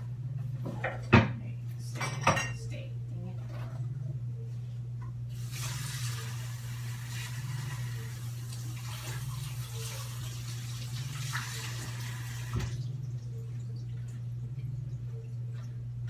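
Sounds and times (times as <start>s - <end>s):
tap water running into sink: 5.4s - 12.9s.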